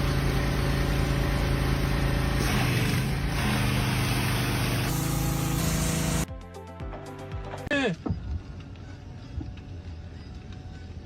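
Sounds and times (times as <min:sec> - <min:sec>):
engine running under load: 0:00.0 - 0:06.3.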